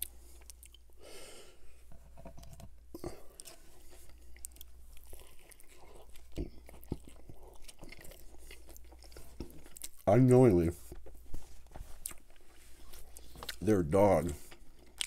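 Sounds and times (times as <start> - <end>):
crunching fried chicken: 3.4 - 10.3.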